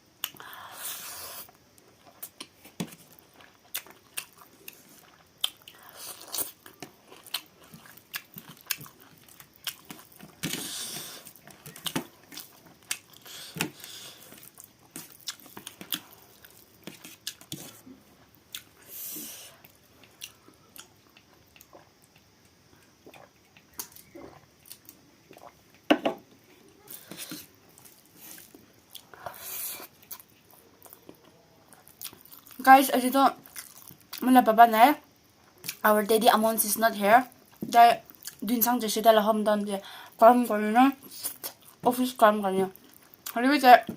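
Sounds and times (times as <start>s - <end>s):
person chewing food: 0.2s - 25.9s, 26.8s - 32.6s, 33.4s - 34.2s, 37.3s - 38.4s, 41.3s - 41.8s, 42.7s - 43.4s.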